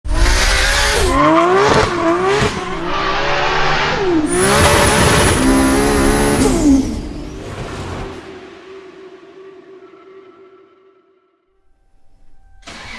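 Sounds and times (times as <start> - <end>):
car engine revving hard: 0.1 - 8.3.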